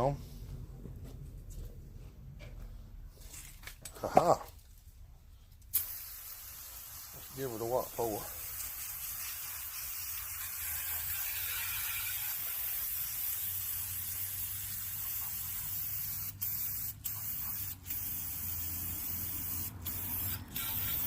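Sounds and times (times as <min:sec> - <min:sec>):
water spray hissing: 0:05.7 - 0:21.0.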